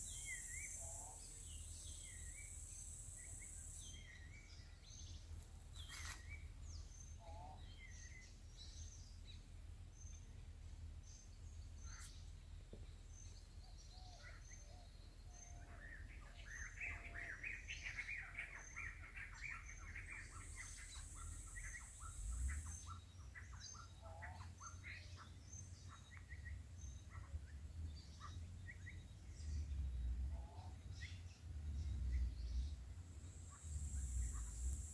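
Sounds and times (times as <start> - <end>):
birds chirping: 0.0 - 34.9
low rumble: 28.7 - 34.9
high-pitched hiss: 33.1 - 34.9.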